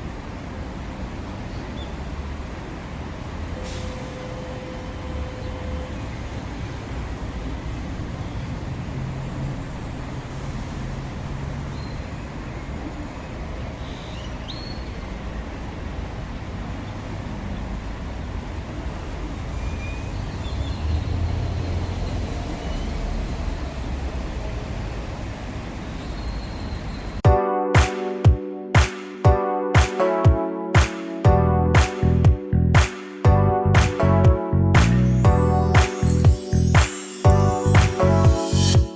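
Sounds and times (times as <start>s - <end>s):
light rail train rumbling: 0.0s - 27.2s
music with sharp beat: 27.2s - 38.9s.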